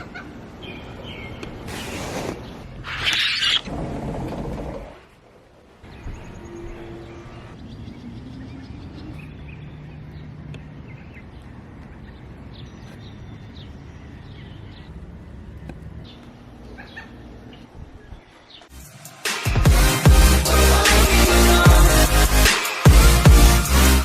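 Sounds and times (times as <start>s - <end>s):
birds chirping: 0.0s - 18.7s.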